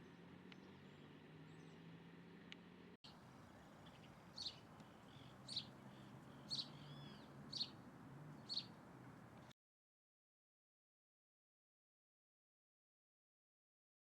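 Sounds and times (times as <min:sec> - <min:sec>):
bird short sharp high calls: 0:03.6 - 0:07.8.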